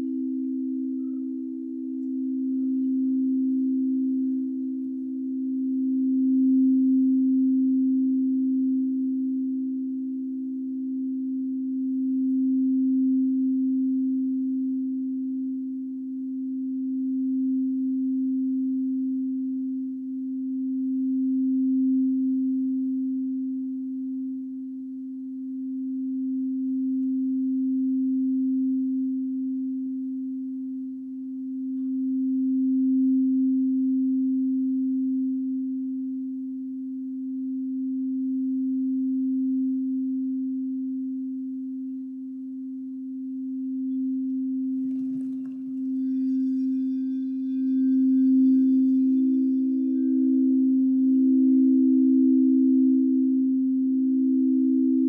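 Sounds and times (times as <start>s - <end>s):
singing bowl low tone: 0.0s - 55.0s.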